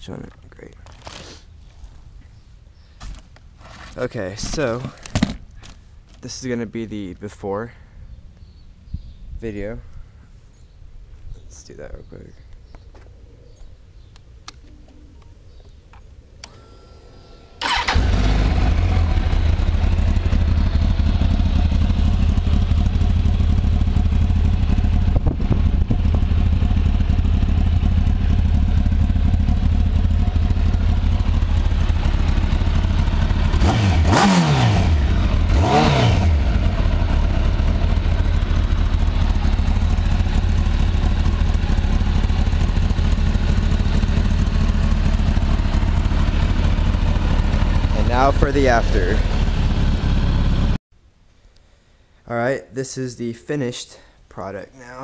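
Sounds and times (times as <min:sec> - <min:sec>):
motorcycle engine starting: 0:16.4 - 0:50.8
motorcycle engine idling: 0:17.6 - 0:50.8.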